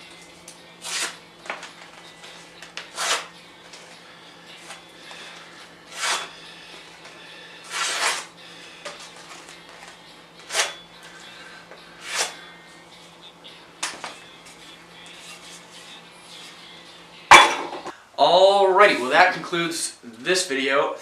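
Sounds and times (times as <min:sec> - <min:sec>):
file rasping on axe steel: 0:00.8 - 0:01.2, 0:02.9 - 0:03.3, 0:05.9 - 0:06.3, 0:07.6 - 0:08.3.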